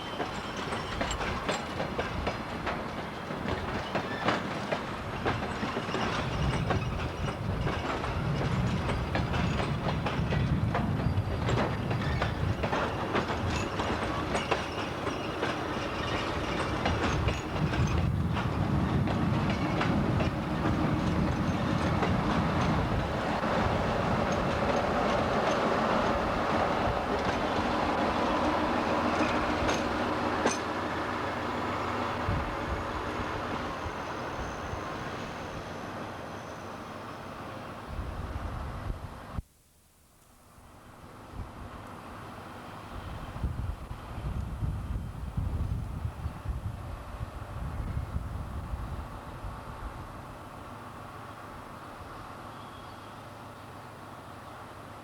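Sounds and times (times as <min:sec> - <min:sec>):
train wheels clicking over rail joints: 0:00.0 - 0:35.2.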